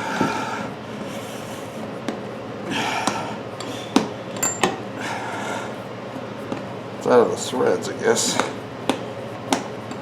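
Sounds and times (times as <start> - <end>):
man breathing heavily: 0.0 - 1.9, 2.6 - 6.4.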